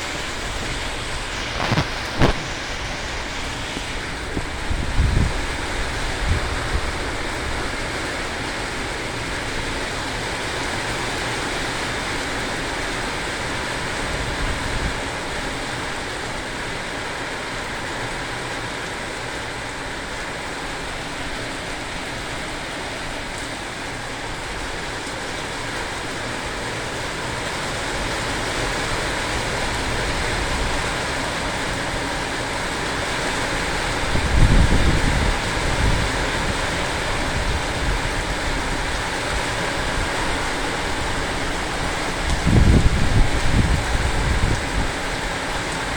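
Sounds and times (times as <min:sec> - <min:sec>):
wind buffeting microphone: 0:00.0 - 0:15.5, 0:28.1 - 0:45.9
heavy rain falling: 0:00.0 - 0:45.9.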